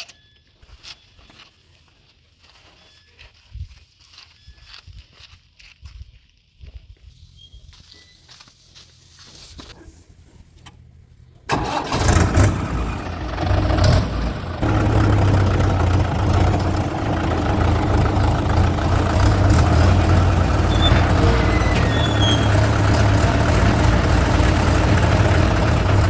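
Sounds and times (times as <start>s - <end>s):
heavy machinery diesel engine: 11.5s - 26.0s.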